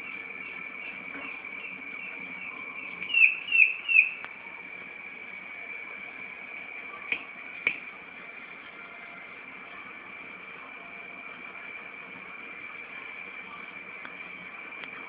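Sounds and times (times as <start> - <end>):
bird chirping: 0.0 - 4.2
high-pitched drone: 0.0 - 7.1.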